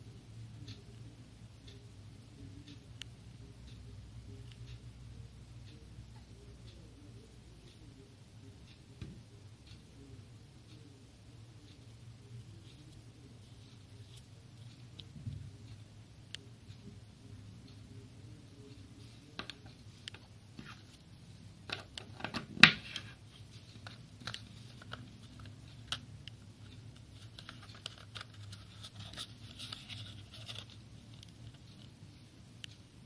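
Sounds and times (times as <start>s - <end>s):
small clicks and rustles: 21.7s - 32.0s.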